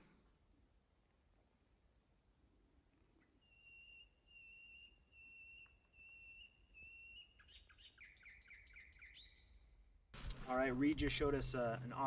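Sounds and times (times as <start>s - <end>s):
bird whistling and warbling: 3.4s - 9.6s.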